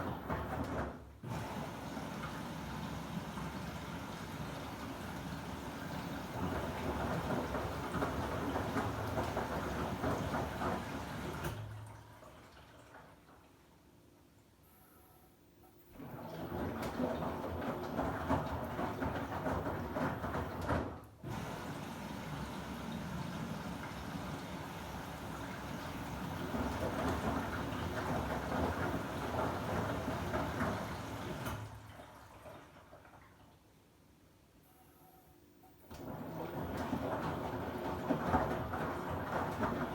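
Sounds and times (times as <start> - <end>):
washing machine drum tumbling: 0.0 - 11.8, 16.0 - 31.8, 35.9 - 39.9.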